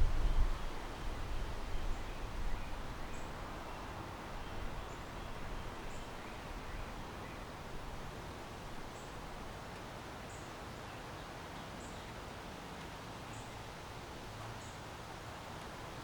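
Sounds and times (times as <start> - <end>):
wind rumble on microphone: 0.0 - 9.6
wind and rustling leaves: 0.0 - 16.0.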